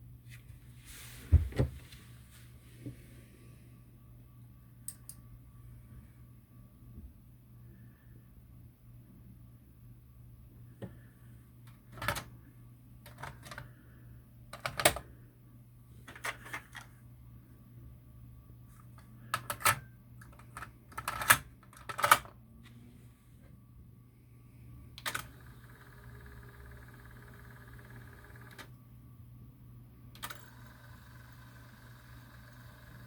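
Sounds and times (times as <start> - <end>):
low steady hum: 0.0 - 33.0
cassette deck mechanism clicking: 14.6 - 15.0, 19.4 - 22.3.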